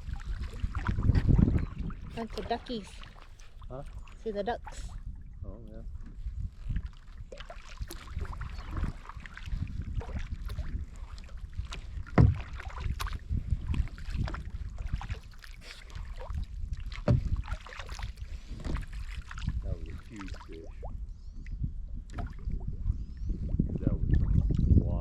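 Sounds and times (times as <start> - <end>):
paddle strokes and water splashing: 0.0 - 21.0, 22.1 - 22.7
loud splashes or knocks: 11.6 - 15.4, 16.2 - 19.5.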